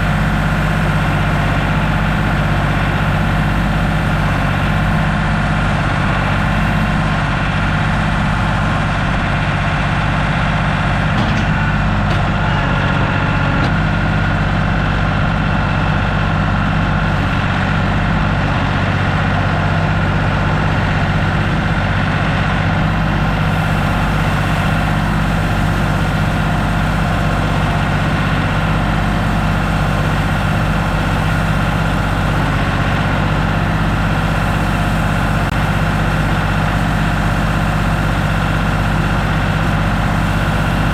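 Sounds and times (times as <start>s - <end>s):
heavy engine idling: 0.0s - 40.9s.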